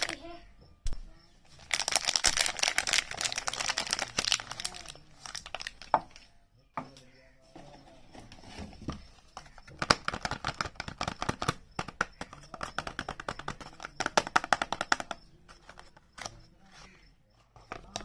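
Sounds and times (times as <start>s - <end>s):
soap packaging crinkling: 1.5s - 6.2s, 9.4s - 16.3s
faint scratching: 7.1s - 9.6s, 15.3s - 18.0s.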